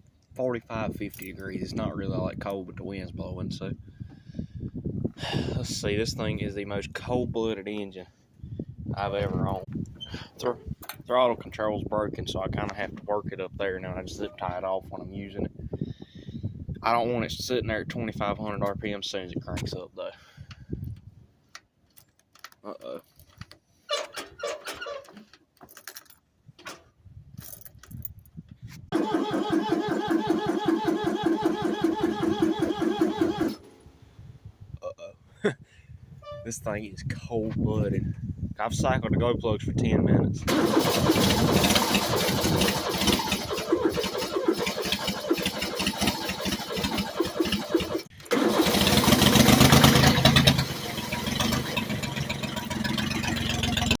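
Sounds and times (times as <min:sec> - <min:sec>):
diesel engine cold start: 0:28.9 - 0:33.7, 0:40.5 - 0:54.0.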